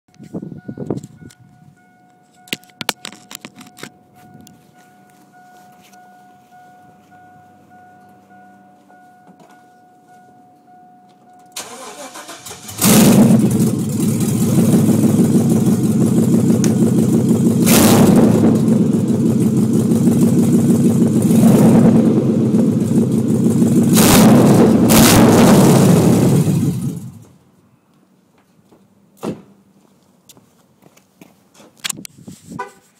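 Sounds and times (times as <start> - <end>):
steady chime: 0.1 - 11.6
engine rumbling and revving: 11.6 - 27.3.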